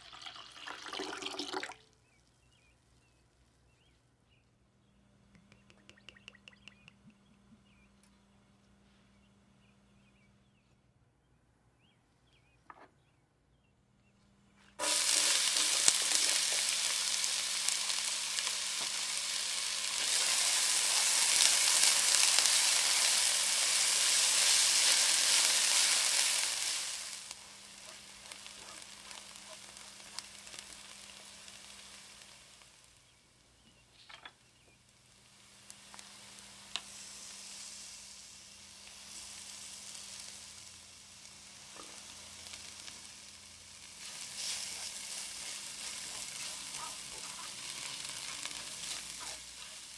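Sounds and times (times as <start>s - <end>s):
utensil stirring clicks: 5.3s - 7.2s
food sizzling in hot oil: 14.8s - 33.2s, 34.4s - 49.9s.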